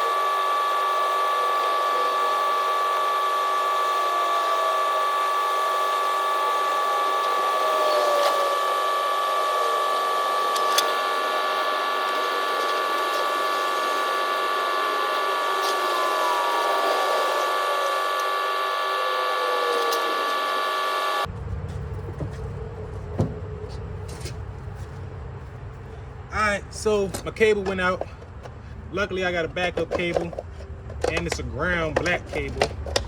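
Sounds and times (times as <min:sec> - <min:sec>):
electric winch motor whining: 0:00.0 - 0:21.3.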